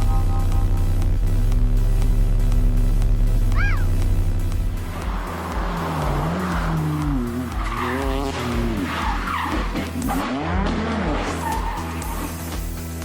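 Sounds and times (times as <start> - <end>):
car engine revving: 0.0 - 13.0
music beat: 0.0 - 13.0
tyres skidding: 3.2 - 13.0.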